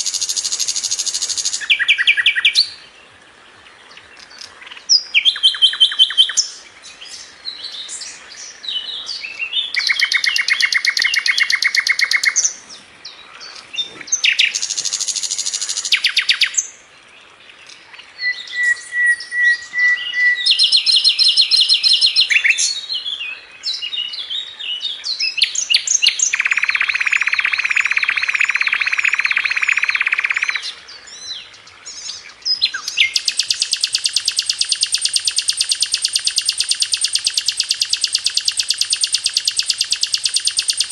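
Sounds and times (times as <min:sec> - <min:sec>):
flycatcher trilling: 0:00.0 - 0:02.7, 0:09.7 - 0:12.6, 0:13.5 - 0:16.6, 0:25.9 - 0:30.7, 0:32.6 - 0:40.9
bird chirps: 0:00.0 - 0:02.9, 0:03.9 - 0:16.8, 0:17.6 - 0:40.9.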